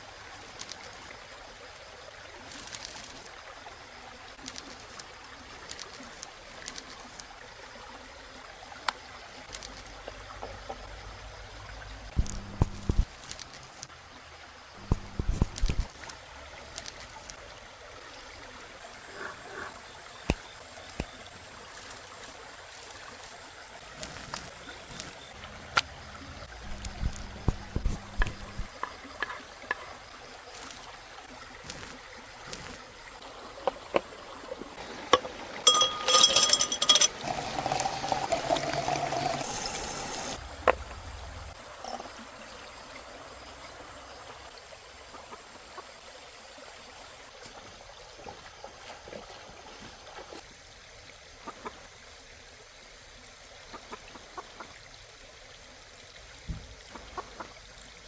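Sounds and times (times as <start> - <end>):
liquid pouring into container: 14.8 - 15.9, 26.6 - 29.4, 35.1 - 40.4
cooking utensils clinking: 26.6 - 28.7, 35.1 - 40.4.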